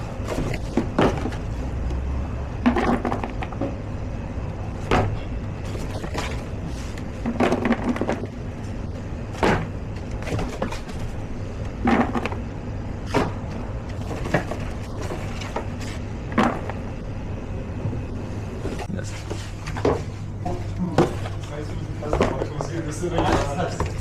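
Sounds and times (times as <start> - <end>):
low hum: 0.0 - 24.0
kitchen knocks and clatters: 7.2 - 8.4, 19.7 - 21.5, 22.1 - 24.0.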